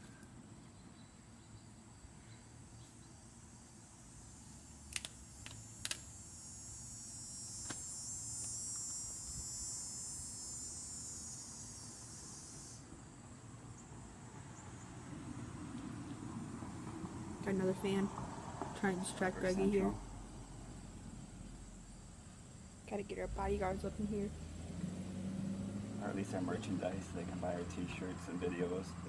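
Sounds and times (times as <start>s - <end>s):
buzzing insect drone: 3.2s - 29.0s
sharp clicks: 4.9s - 6.1s.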